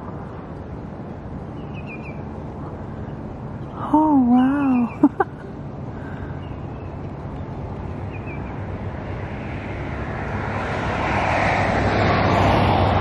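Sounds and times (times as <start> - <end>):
vehicle approaching: 0.0 - 13.0
small bird chirping: 1.5 - 2.3, 6.3 - 8.6.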